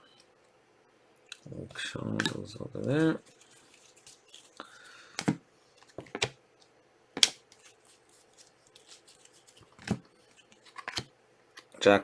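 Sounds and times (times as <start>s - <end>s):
card packs snapping: 8.4s - 11.1s.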